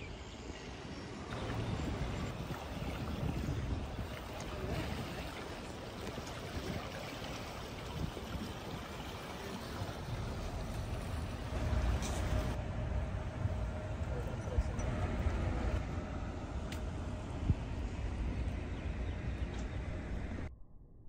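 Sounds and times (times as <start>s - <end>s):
boat engine rumble: 0.0s - 20.5s
rushing water: 1.2s - 12.6s.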